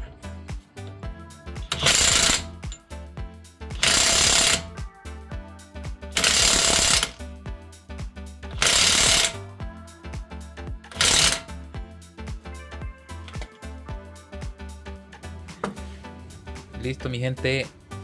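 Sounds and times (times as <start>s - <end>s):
background music: 0.0s - 18.0s
impact wrench hammering: 1.6s - 2.8s, 3.8s - 4.7s, 6.2s - 7.2s, 8.6s - 9.4s, 10.9s - 11.5s, 13.3s - 13.5s.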